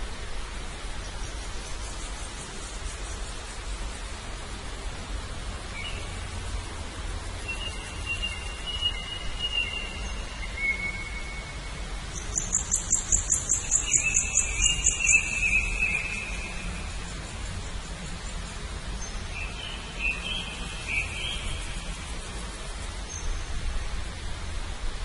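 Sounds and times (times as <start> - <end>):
bird trill of high ticks: 12.2 - 18.4.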